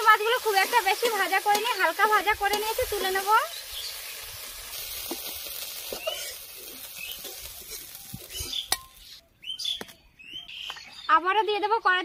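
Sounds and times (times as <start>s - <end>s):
prawns sizzling in oil: 0.0s - 9.2s
metal spatula scraping: 4.6s - 9.2s.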